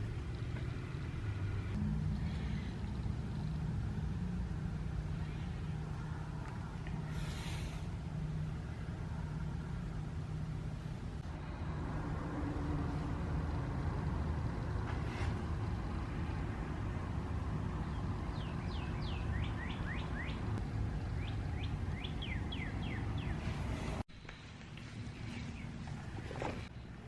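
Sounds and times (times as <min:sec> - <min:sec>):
steady low rumble: 0:00.0 - 0:18.7
bird chirping: 0:17.8 - 0:23.9.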